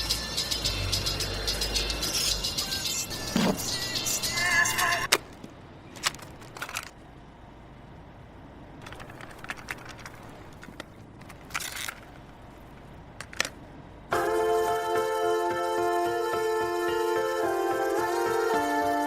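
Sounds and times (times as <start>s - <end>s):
music: 0.0s - 5.1s, 14.1s - 19.0s
clicks and crackles: 5.1s - 7.1s, 8.8s - 13.6s.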